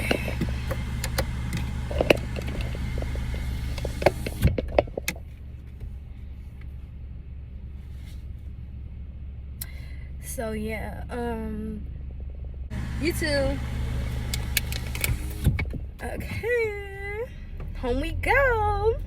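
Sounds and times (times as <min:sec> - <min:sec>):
sharp clicks and knocks: 0:00.0 - 0:05.3, 0:14.2 - 0:15.9
outside noise: 0:00.0 - 0:10.2
car engine idling: 0:00.0 - 0:19.0.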